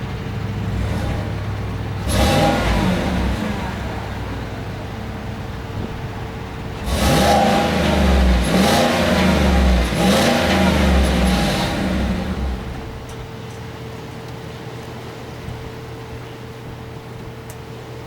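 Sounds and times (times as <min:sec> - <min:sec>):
pickup engine idling and revving: 0:00.0 - 0:13.7.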